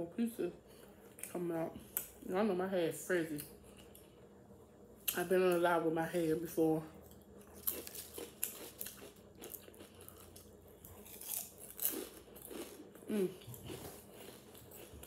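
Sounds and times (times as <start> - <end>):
person chewing crunchy food: 7.0 - 15.0.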